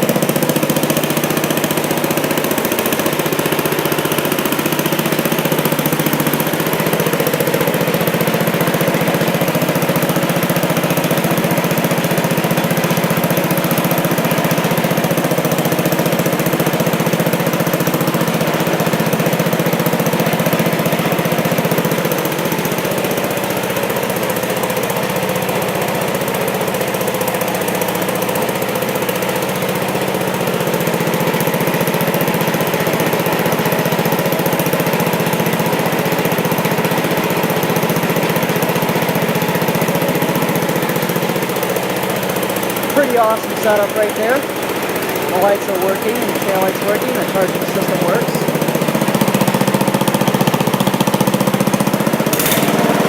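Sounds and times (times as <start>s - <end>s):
garden tractor engine running: 0.0s - 53.0s.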